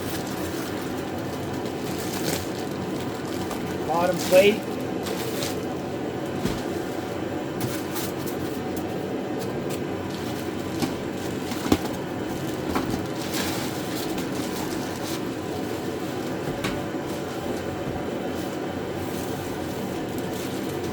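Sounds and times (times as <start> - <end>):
low background hum: 0.0 - 20.9
knocks and rustles of parts handled: 9.7 - 15.4.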